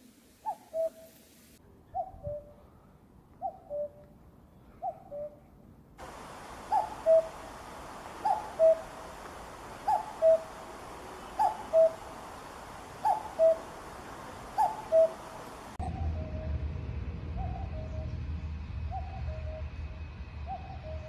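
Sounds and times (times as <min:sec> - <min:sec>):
steady background hiss: 0:00.0 - 0:01.6, 0:06.0 - 0:15.8
cuckoo calling: 0:00.4 - 0:01.2, 0:03.4 - 0:04.0, 0:06.0 - 0:16.4.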